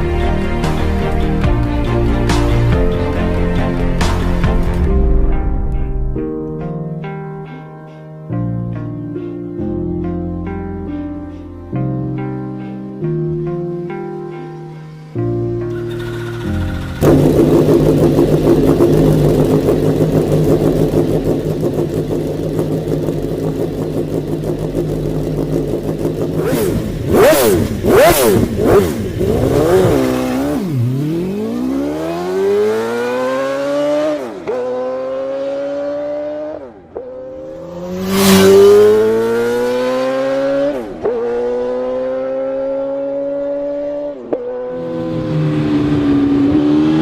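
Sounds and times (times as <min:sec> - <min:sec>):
motorcycle engine revving and accelerating: 0:15.7 - 0:47.0.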